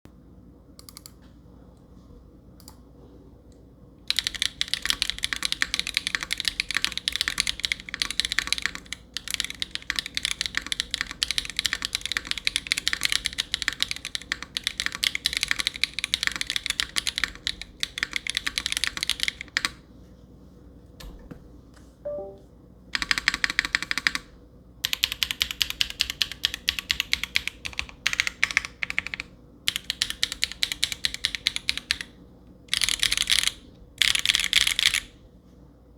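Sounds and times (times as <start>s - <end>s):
mechanical keyboard typing: 0.8s - 1.2s, 4.1s - 19.8s, 23.0s - 32.1s, 32.7s - 35.1s.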